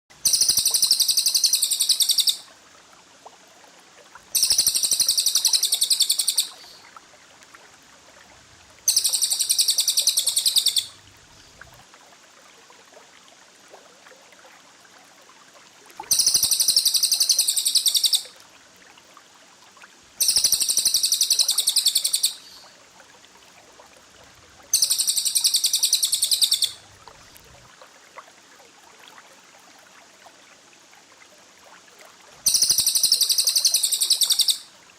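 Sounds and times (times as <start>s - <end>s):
small bird chattering trill: 0.2s - 2.4s, 4.4s - 6.6s, 8.9s - 10.9s, 16.1s - 18.2s, 20.2s - 22.5s, 24.7s - 26.8s, 32.5s - 34.6s
faint hiss: 0.2s - 34.9s.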